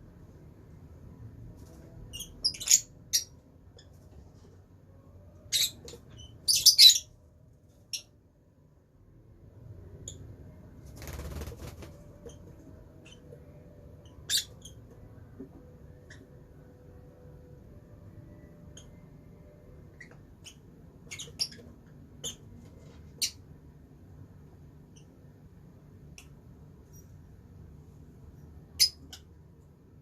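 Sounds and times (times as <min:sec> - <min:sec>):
lovebirds chirping: 0:02.1 - 0:04.1, 0:05.3 - 0:07.2, 0:12.2 - 0:15.1, 0:18.4 - 0:22.6.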